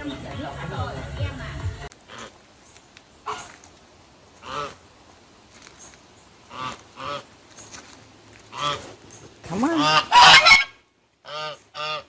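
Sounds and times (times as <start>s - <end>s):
goose honking: 4.4s - 4.8s, 6.5s - 7.3s, 8.5s - 8.9s, 9.5s - 12.0s.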